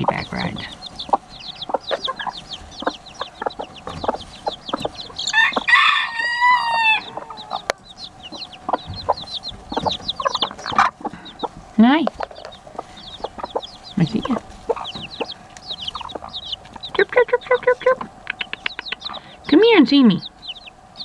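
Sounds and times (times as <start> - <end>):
baby chicks peeping: 0.0 - 21.0
hens clucking: 0.0 - 21.0
rooster crowing: 5.2 - 7.8.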